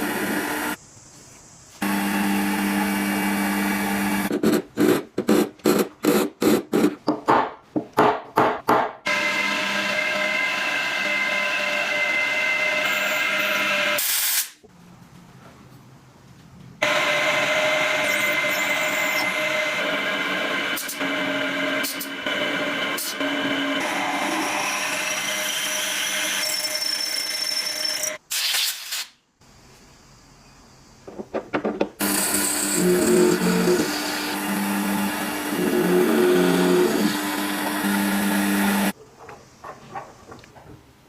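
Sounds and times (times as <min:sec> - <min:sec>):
power tool motor whining: 0:32.0 - 0:38.9.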